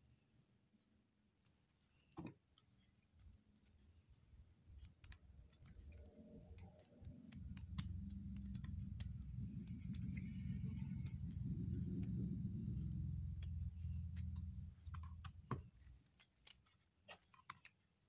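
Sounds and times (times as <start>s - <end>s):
low steady rumble: 4.7s - 16.0s.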